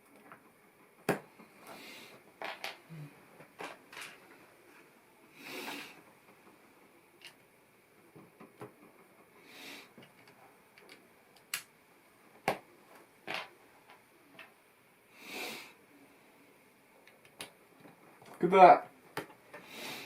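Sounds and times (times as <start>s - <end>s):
plastic pieces clicking together: 10.0s - 11.7s.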